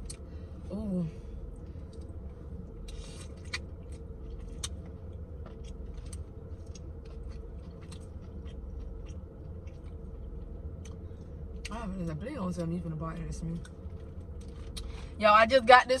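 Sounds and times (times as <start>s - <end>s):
steady low hum: 0.0s - 16.0s
chewing and lip-smacking: 1.5s - 11.8s, 13.5s - 14.9s.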